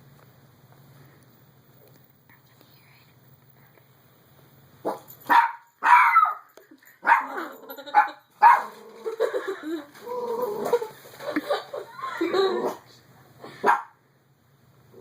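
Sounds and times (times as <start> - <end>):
dog barking: 4.8 - 8.7, 13.6 - 14.0.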